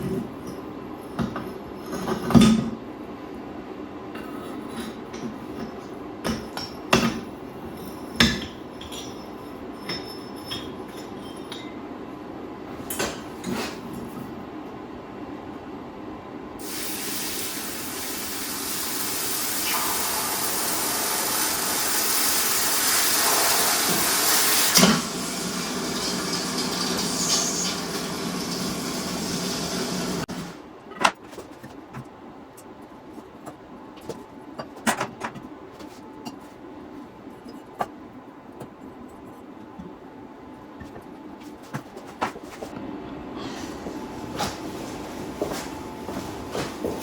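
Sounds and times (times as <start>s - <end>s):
loud rushing hiss: 16.6s - 30.3s.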